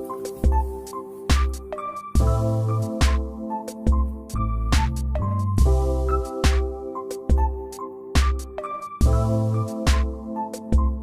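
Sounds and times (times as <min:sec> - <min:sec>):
synth melody: 0:00.0 - 0:11.0
heavy bass beat: 0:01.3 - 0:07.6, 0:08.2 - 0:10.2.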